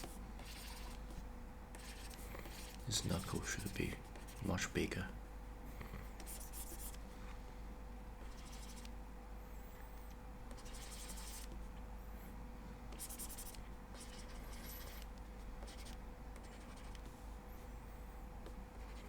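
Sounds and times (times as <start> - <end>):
stylus scratching pen tablet: 0.0 - 4.7, 6.2 - 7.0, 8.2 - 8.9, 9.6 - 11.6, 12.9 - 18.1, 18.8 - 19.0
faint steady hum: 0.0 - 19.0.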